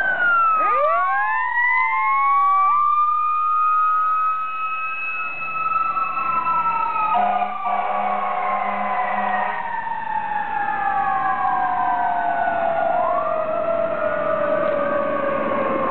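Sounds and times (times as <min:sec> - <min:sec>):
fire engine sirens wailing: 0:00.0 - 0:15.9
air horn blast: 0:07.1 - 0:09.6.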